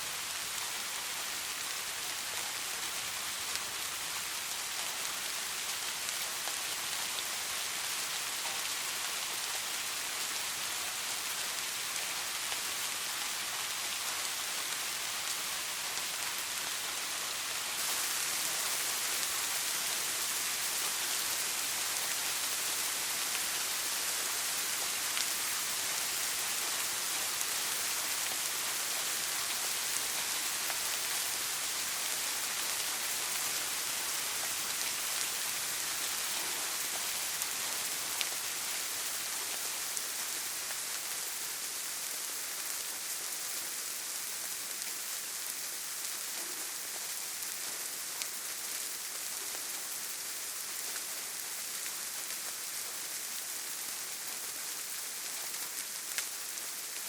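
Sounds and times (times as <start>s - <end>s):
steady rain hiss: 0.0s - 57.0s
faint raindrop ticks: 7.9s - 9.7s, 17.7s - 57.0s.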